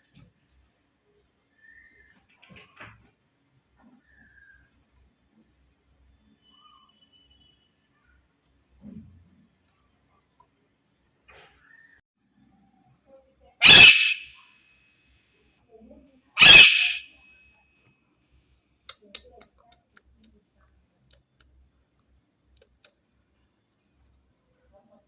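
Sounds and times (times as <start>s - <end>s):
faint chirps: 1.0s - 2.3s, 3.9s - 4.9s, 6.1s - 8.5s, 11.3s - 12.0s, 13.1s - 14.4s, 16.4s - 17.7s
parrot squawk: 13.6s - 14.3s, 16.4s - 17.1s.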